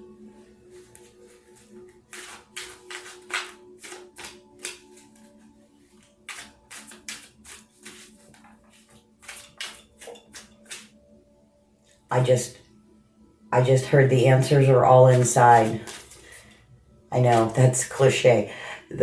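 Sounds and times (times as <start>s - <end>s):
soft background music: 0.0s - 19.0s
cards being shuffled: 0.9s - 10.9s, 15.1s - 16.6s, 17.2s - 17.7s.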